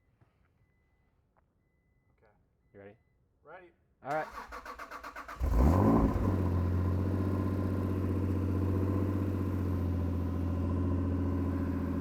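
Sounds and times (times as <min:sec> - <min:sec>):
car engine starting and idling: 0:04.2 - 0:12.0.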